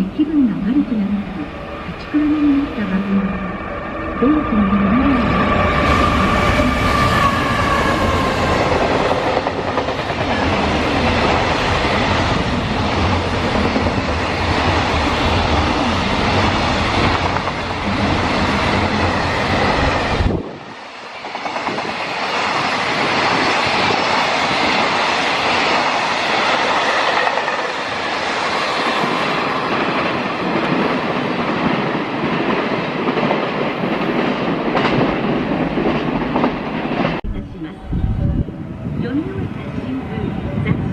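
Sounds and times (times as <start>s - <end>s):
train wheels rolling on rails: 3.8s - 37.2s.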